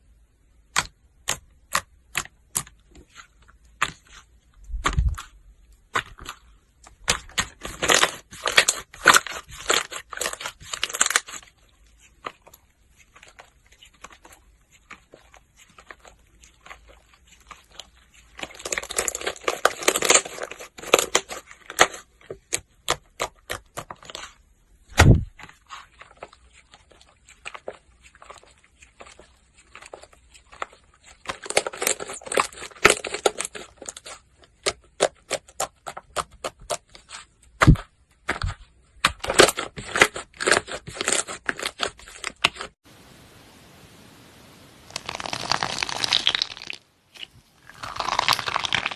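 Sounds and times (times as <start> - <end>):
slime crackling and popping: 15.0 - 24.3, 44.9 - 46.8, 47.6 - 48.9.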